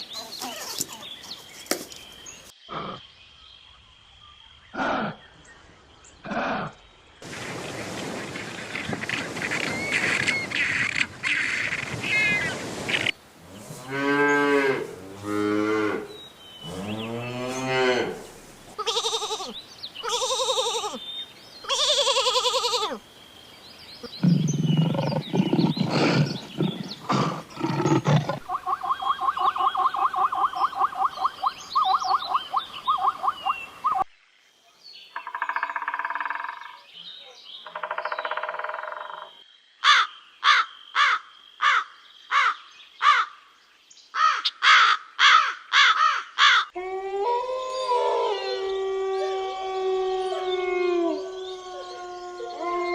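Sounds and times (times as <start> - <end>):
low rhythmic animal pulses: 24.0 - 31.4.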